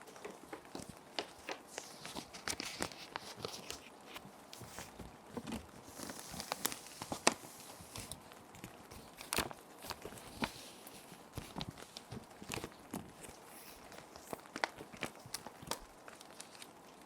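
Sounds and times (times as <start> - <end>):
plastic sheet protectors crinkling: 0.0 - 17.0
sheet sliding against plastic: 1.2 - 8.2, 9.0 - 14.4.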